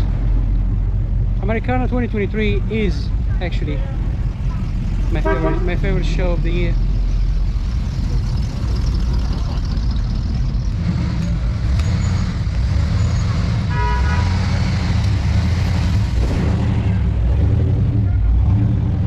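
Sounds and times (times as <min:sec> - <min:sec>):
car engines rumbling past: 0:00.0 - 0:19.0
car horn toot: 0:05.2 - 0:05.8, 0:13.7 - 0:14.5.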